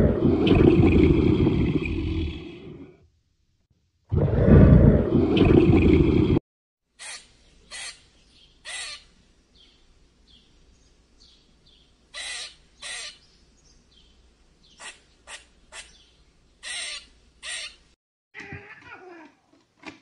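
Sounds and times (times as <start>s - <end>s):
macaws squawking: 7.0s - 8.0s, 8.6s - 9.1s, 12.2s - 13.2s, 16.6s - 17.8s.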